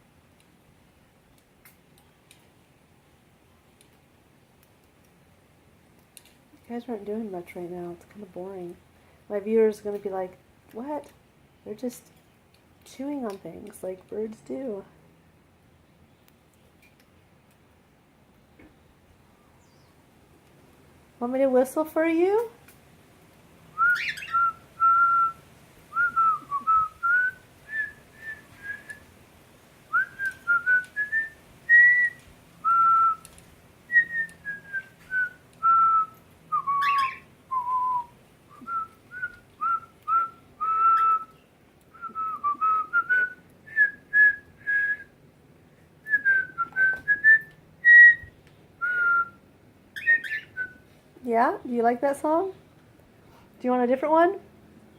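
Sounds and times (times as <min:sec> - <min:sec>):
person whistling a slow tune: 0:26.0 - 0:29.0, 0:29.9 - 0:33.2, 0:33.9 - 0:36.8, 0:37.5 - 0:41.3, 0:42.0 - 0:45.1, 0:46.1 - 0:49.4.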